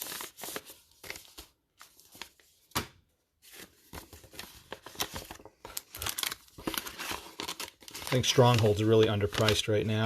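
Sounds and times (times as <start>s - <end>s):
foil pack crinkling: 4.7s - 10.0s.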